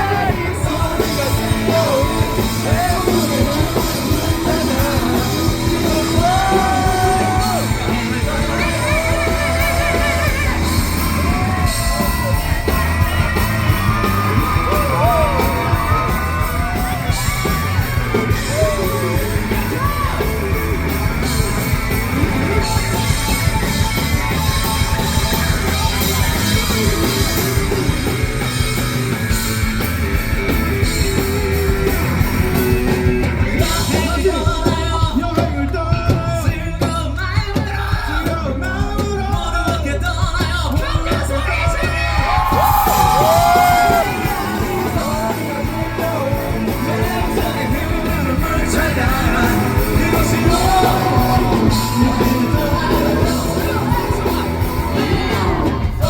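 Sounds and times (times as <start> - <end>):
person singing: 0.0 - 28.1, 33.3 - 56.0
bass guitar: 0.0 - 56.0
drums: 0.0 - 56.0
electric guitars: 0.0 - 56.0.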